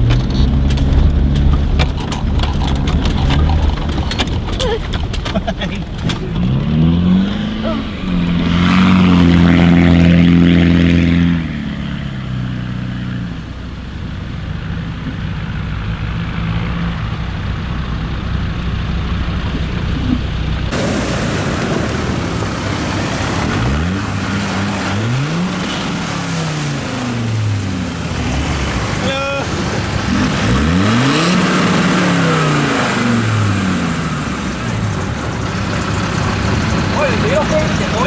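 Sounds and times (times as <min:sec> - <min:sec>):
off-road engine revving: 0:00.0 - 0:38.0.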